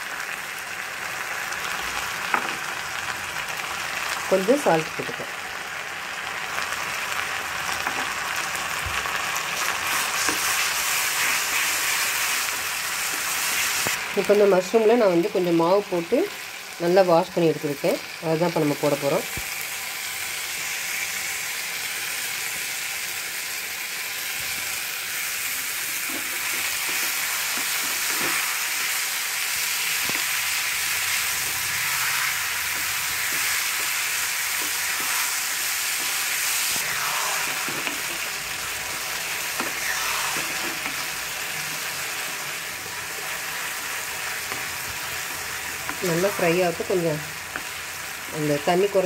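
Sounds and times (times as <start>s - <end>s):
mushrooms sizzling in a pan: 0.0s - 49.0s
spatula scraping a pan: 9.6s - 13.9s, 39.5s - 41.2s.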